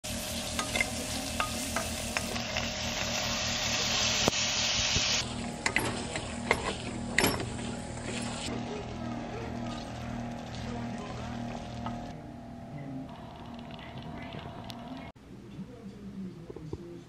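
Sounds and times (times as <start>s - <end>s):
food sizzling in a pan: 0.0s - 12.1s
wooden spoon scraping a pan: 5.2s - 12.1s.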